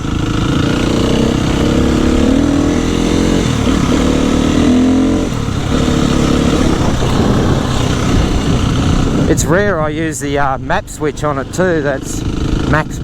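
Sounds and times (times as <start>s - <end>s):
dirt bike engine under throttle: 0.0s - 13.0s.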